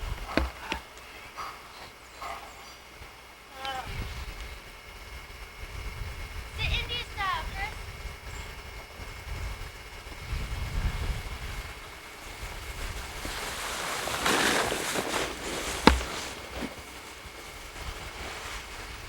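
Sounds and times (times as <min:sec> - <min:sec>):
wind buffeting microphone: 0:03.8 - 0:19.0.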